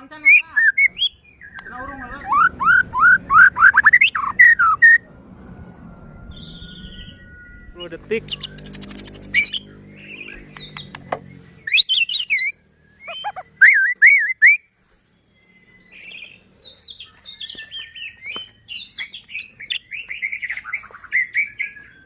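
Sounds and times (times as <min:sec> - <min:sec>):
low steady hum: 0:00.0 - 0:11.7
bird singing whistles and trills: 0:00.1 - 0:05.0, 0:05.6 - 0:22.0.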